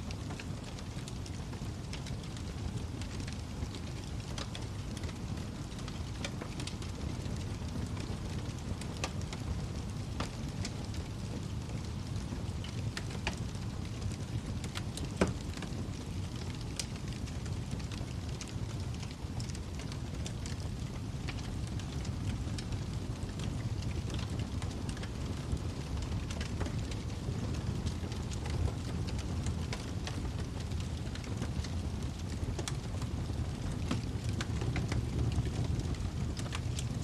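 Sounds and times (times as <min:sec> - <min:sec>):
fire crackling and popping: 0:00.0 - 0:37.0
low roar of flames: 0:00.0 - 0:37.0.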